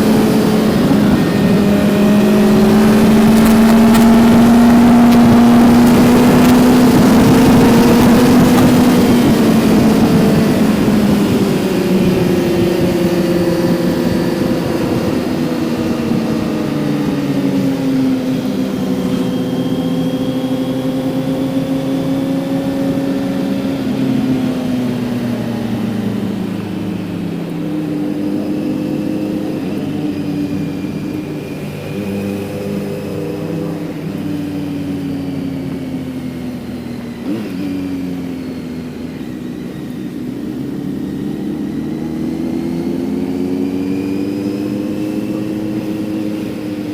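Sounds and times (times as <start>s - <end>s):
wind rush: 0.0s - 18.1s
motorcycle engine running: 0.0s - 46.9s.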